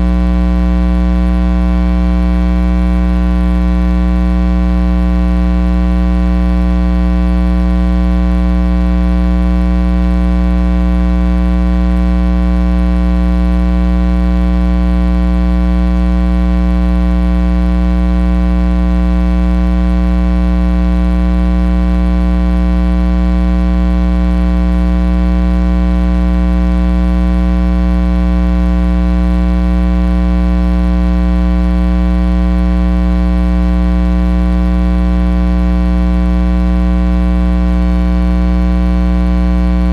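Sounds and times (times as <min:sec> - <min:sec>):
electrical mains hum: 0:39.6 - 0:39.9.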